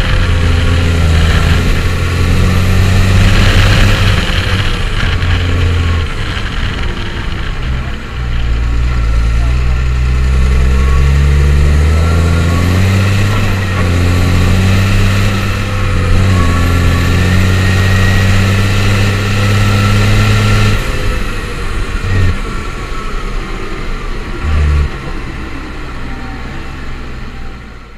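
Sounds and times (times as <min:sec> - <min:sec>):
high whine: 0:00.0 - 0:27.9
tractor diesel engine running: 0:00.0 - 0:27.9.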